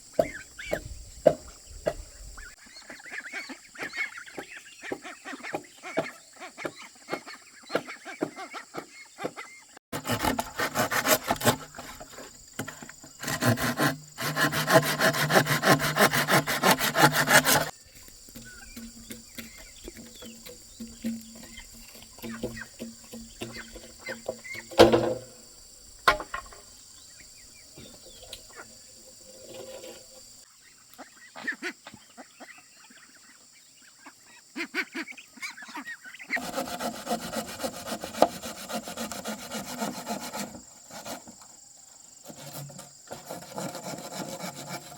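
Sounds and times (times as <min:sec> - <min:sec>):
scraping wood by hand: 0:09.9 - 0:25.4, 0:27.8 - 0:30.4, 0:36.4 - 0:41.4, 0:42.2 - 0:44.9.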